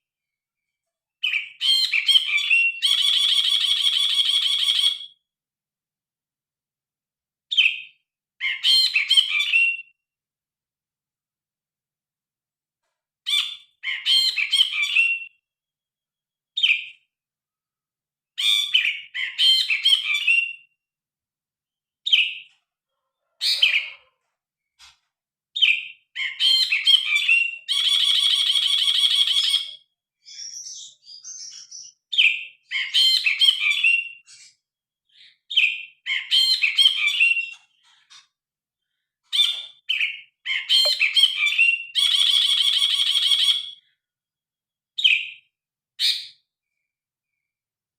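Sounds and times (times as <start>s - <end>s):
bird singing chirping phrases: 1.2s - 5.2s, 13.3s - 15.4s, 16.6s - 17.1s, 18.4s - 20.8s, 25.6s - 38.0s, 39.3s - 42.5s, 45.0s - 47.5s.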